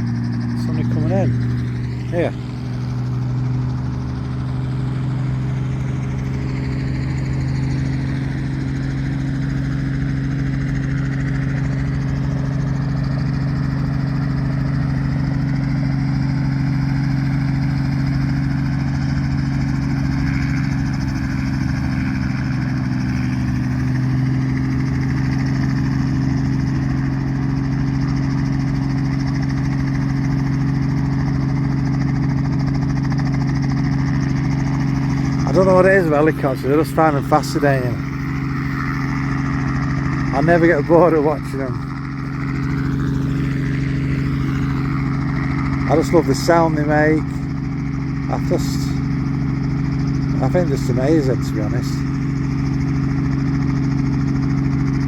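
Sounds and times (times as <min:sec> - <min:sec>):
helicopter engine and rotors: 0:00.0 - 0:55.0.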